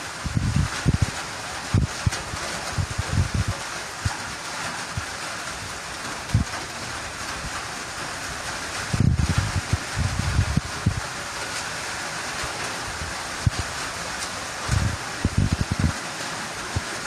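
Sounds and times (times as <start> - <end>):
heavy rain falling: 0.0 - 17.0
wind buffeting microphone: 0.2 - 4.2, 6.3 - 6.7, 8.8 - 11.1, 12.8 - 13.8, 14.6 - 16.1.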